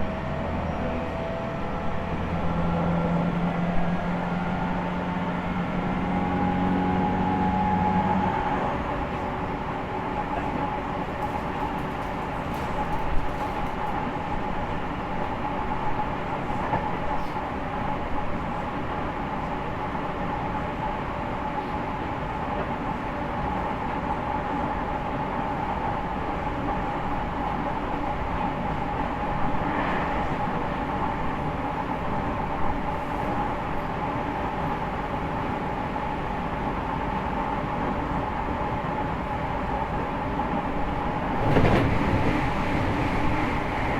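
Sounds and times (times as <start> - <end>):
rail and wheel noise: 0.0 - 43.9.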